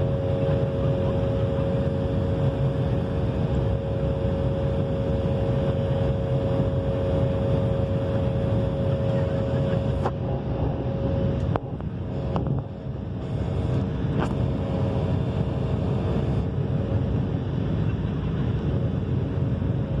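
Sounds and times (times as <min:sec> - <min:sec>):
jet engines rumbling and whining: 0:00.0 - 0:20.0.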